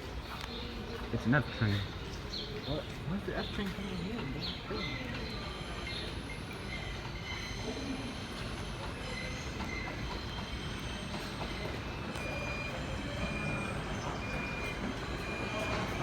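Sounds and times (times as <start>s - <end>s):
subway train running on track: 0.0s - 16.0s
wheels squealing: 3.9s - 16.0s.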